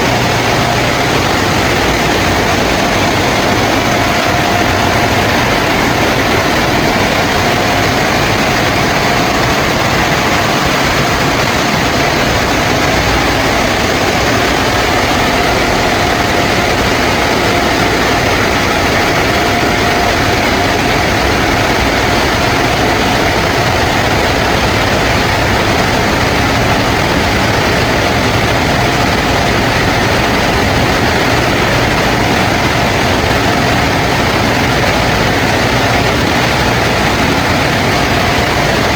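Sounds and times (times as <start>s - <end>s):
car wash rushing: 0.0s - 38.9s
steady machine whine: 0.0s - 38.9s.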